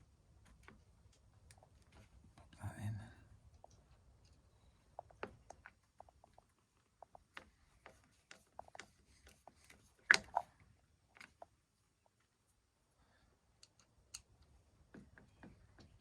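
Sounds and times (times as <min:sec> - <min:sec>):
plastic parts clicking and tapping: 0:13.6 - 0:16.0.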